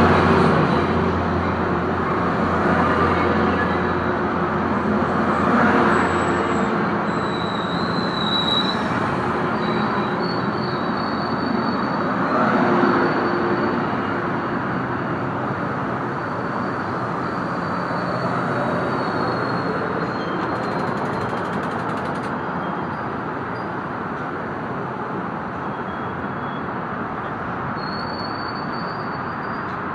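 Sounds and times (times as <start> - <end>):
steel wheels squealing: 5.1 - 14.9, 16.1 - 23.8, 27.8 - 29.9
train rolling rumble: 15.4 - 23.0.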